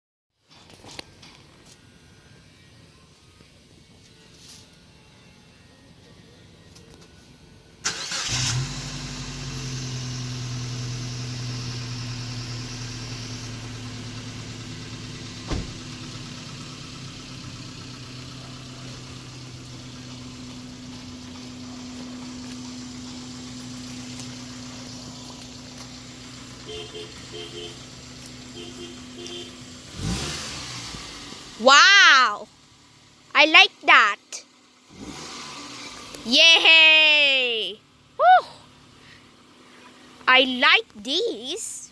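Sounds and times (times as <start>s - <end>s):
car engine starting and idling: 6.7s - 31.6s, 32.2s - 33.8s, 34.4s - 36.3s, 37.8s - 41.0s.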